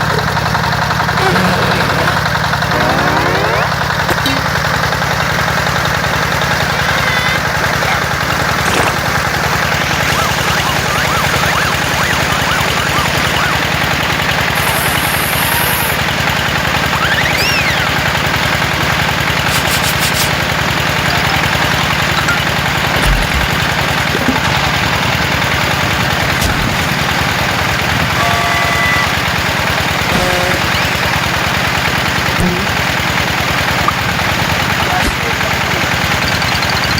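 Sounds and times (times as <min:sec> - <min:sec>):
engine idling: 0:00.0 - 0:36.9.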